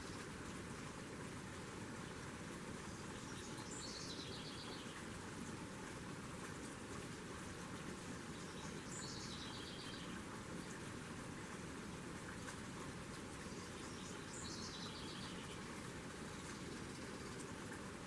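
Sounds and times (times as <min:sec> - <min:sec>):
steady outdoor hiss: 0:00.0 - 0:18.0
songbird singing: 0:02.9 - 0:05.0, 0:08.3 - 0:10.2, 0:13.4 - 0:17.5.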